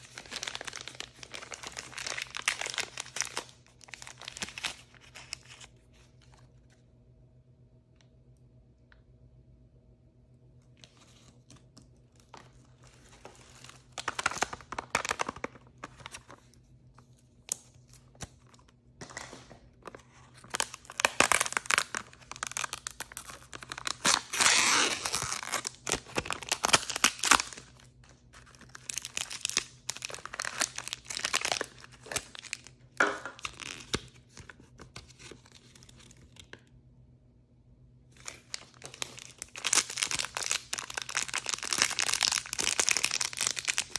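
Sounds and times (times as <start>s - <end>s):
packaging tearing and crinkling: 0.0s - 5.8s, 12.2s - 16.5s, 17.4s - 36.4s, 38.2s - 43.9s.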